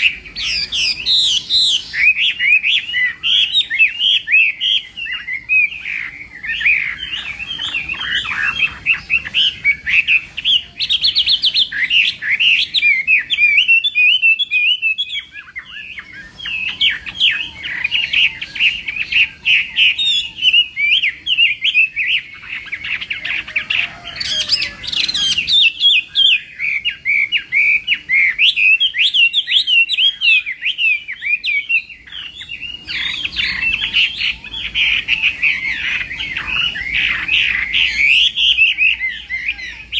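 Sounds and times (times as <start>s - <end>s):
bird warbling song: 0.0s - 39.9s.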